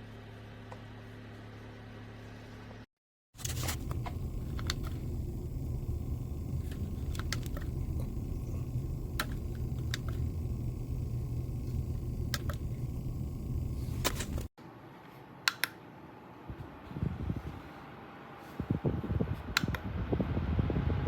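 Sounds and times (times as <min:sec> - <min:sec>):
desk fan airflow rumble: 0:03.4 - 0:14.5, 0:16.5 - 0:21.0.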